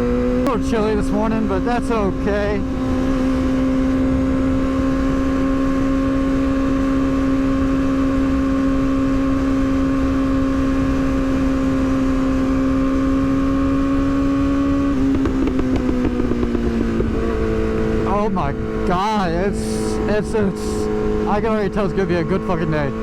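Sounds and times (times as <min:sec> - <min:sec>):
motorcycle engine at high speed: 0:00.0 - 0:23.0
wind rumble: 0:10.7 - 0:21.8.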